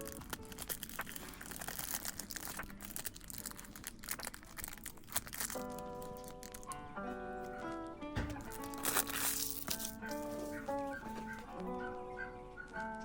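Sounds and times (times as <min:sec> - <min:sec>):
crinkly material rustling: 0:00.0 - 0:11.9
lofi hip-hop music: 0:06.7 - 0:13.0.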